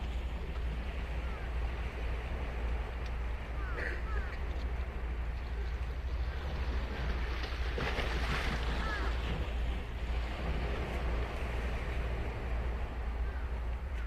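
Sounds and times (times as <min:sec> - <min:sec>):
wind rumble on microphone: 0:00.0 - 0:14.0
ocean surf breaking on beach: 0:06.1 - 0:13.5.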